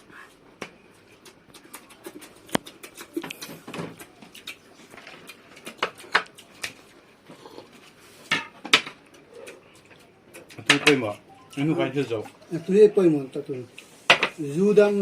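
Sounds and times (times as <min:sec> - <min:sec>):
clicks and taps of utensils: 0:10.3 - 0:11.1.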